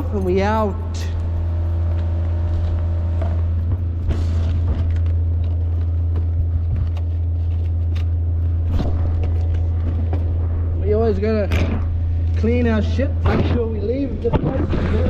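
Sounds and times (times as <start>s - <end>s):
gear knocks and rustles: 0.0s - 10.4s
loud steady low rumble: 0.0s - 15.0s.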